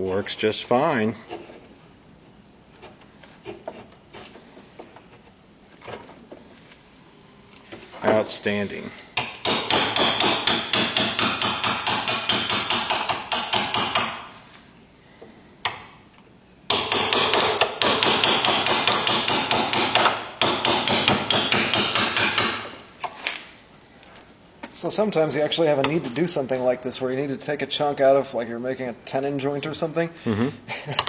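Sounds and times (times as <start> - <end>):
hammer striking chisel into wood: 9.2 - 14.3, 16.7 - 22.8.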